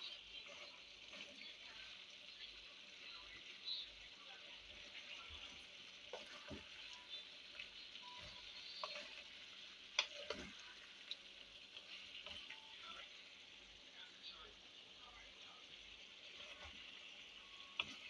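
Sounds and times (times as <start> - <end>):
chicken sizzling in frying pan: 0.0 - 18.0
wooden spatula scraping pan: 5.3 - 6.9, 8.1 - 10.6, 16.3 - 17.0, 17.8 - 18.0.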